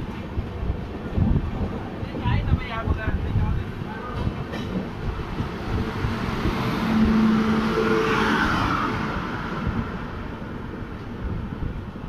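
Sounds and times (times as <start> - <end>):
train wheels clattering on rail: 0.0 - 7.8
passing electric locomotive: 0.0 - 12.0
rushing air: 3.3 - 12.0.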